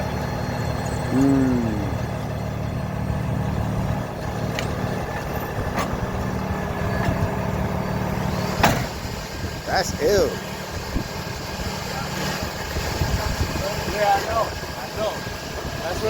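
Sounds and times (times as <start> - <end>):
vehicle engine rumbling: 0.0 - 16.0
rising and falling hoot: 1.0 - 2.3.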